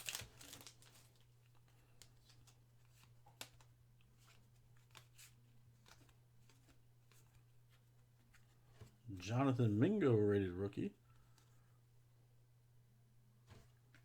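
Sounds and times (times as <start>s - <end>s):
trading cards clicking and rustling: 0.0s - 1.0s.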